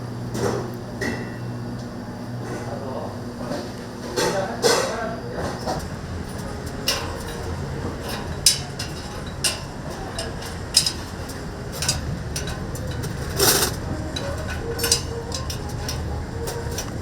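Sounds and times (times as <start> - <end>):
loud clatter: 5.6 - 17.0.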